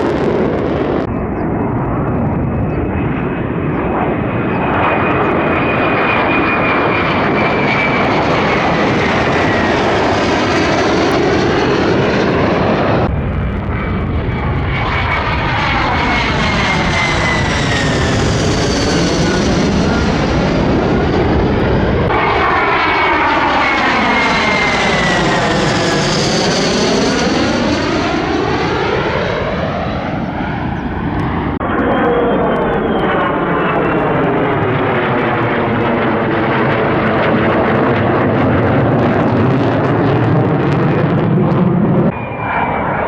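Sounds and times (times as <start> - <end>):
jet fighter flying past: 0.0 - 43.0.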